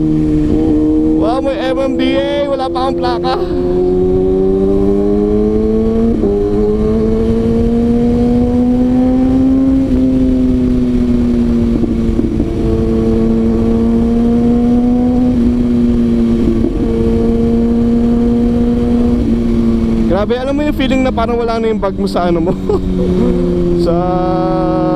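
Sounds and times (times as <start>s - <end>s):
wind rush: 0.0s - 17.8s.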